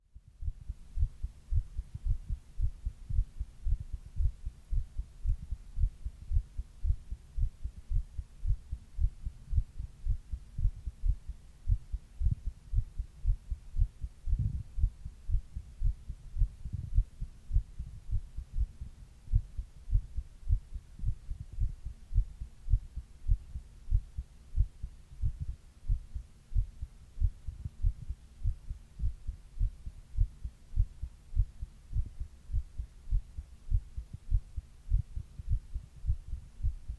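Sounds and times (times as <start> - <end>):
heartbeat thumps: 0.0 - 36.9.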